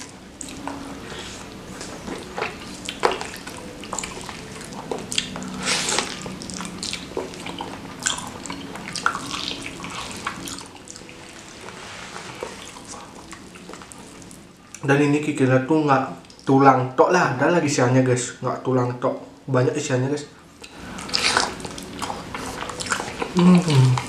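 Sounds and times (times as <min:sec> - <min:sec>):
wet chewing and lip-smacking: 0:00.0 - 0:14.8, 0:20.6 - 0:24.0.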